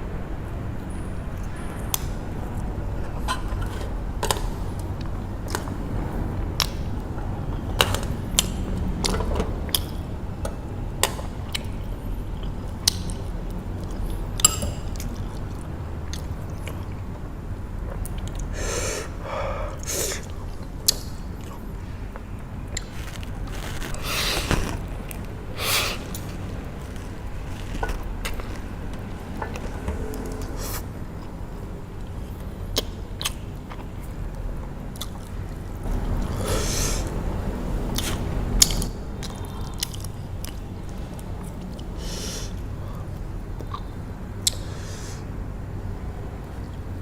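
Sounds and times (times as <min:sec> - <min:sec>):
steady low rumble: 0:00.0 - 0:42.0
person chewing noodles: 0:11.4 - 0:31.4.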